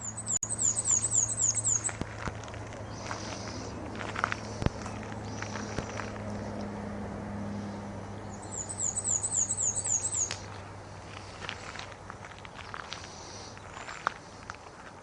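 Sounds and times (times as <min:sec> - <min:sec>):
songbird trill: 0:00.0 - 0:02.1, 0:02.7 - 0:06.5, 0:08.2 - 0:11.4.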